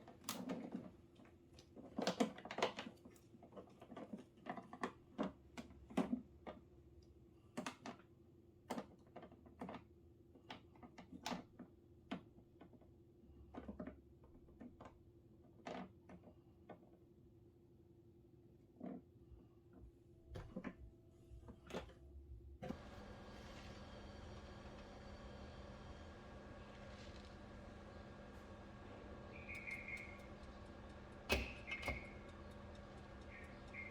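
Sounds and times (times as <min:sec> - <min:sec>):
faint steady hum: 0:19.2 - 0:33.9.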